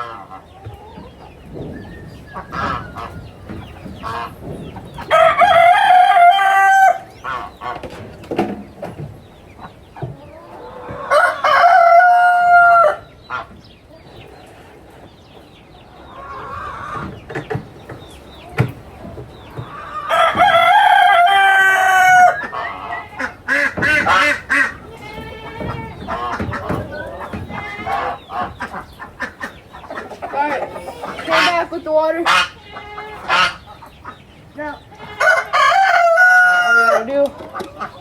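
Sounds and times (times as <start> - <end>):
rooster clucking: 0.0 - 38.0
rooster crowing: 5.0 - 7.1, 11.0 - 13.1, 19.9 - 23.1, 35.1 - 37.2.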